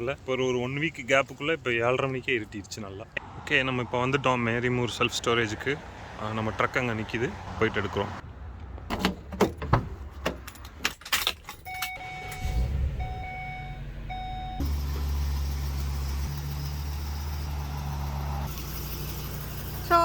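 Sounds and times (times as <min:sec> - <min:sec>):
keys and door clunks: 0:08.9 - 0:12.4
truck engine idling: 0:12.0 - 0:20.0.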